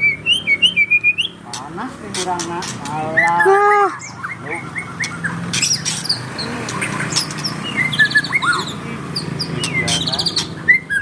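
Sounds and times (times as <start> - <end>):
bird singing whistles and chirps: 0.0 - 1.4, 3.1 - 11.0
buzzy bird trill: 0.0 - 11.0.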